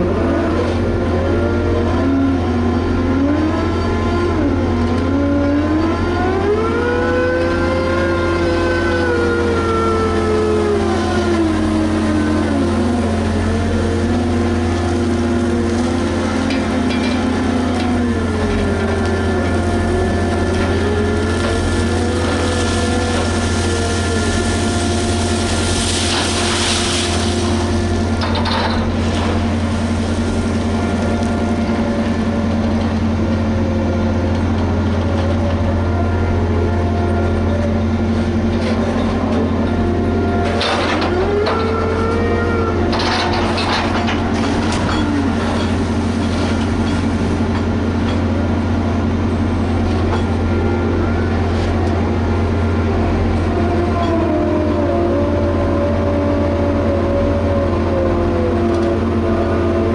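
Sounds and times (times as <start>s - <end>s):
excavator engine humming: 0.0s - 59.9s
loud noisy bursts: 6.7s - 34.8s.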